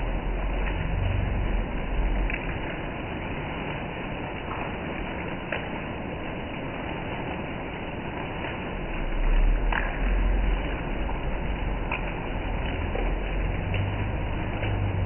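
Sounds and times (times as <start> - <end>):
low rumble: 0.0 - 3.6, 8.2 - 15.0
heavy rain on foliage: 0.0 - 15.0.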